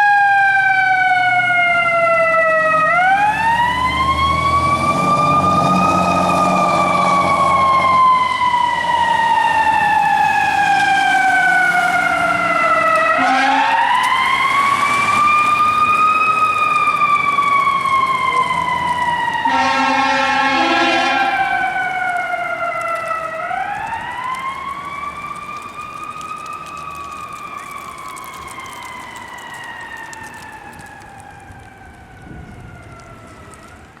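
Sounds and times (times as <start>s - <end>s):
fire truck siren wailing: 0.0s - 34.0s
horn blasts: 13.1s - 14.0s, 19.4s - 21.8s.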